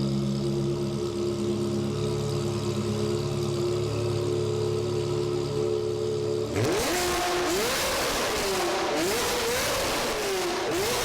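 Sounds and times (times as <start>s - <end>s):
car engine revving: 6.5s - 11.0s.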